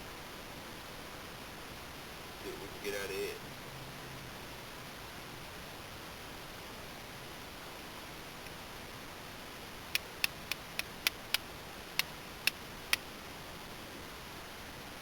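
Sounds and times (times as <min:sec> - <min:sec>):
steel striker clicking on flint: 0:09.9 - 0:11.4.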